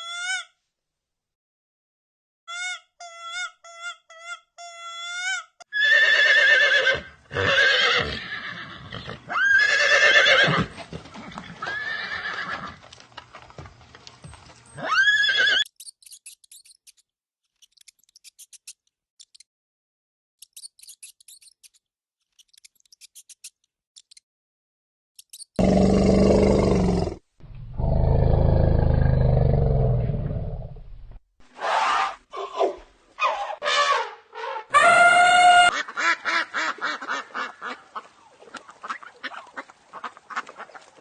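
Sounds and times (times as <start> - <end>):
horse neighing: 5.7 - 10.8.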